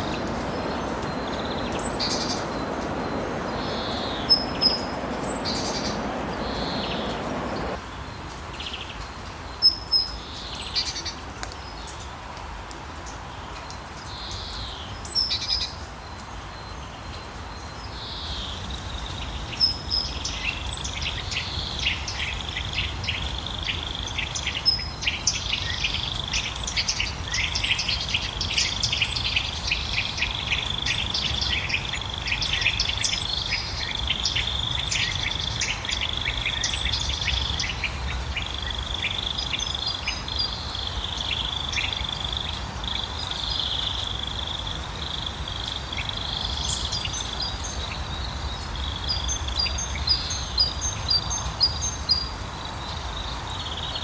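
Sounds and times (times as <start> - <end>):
birds chirping: 0.0 - 7.8
low rumble: 0.0 - 7.8.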